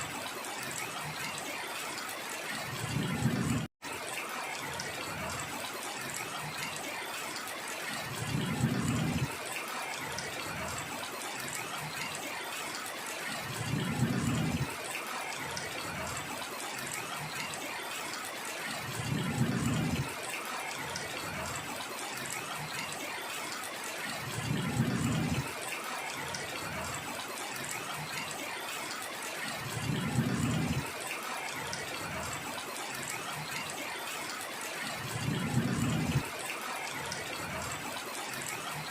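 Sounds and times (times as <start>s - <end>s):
heavy rainfall: 0.0s - 38.9s.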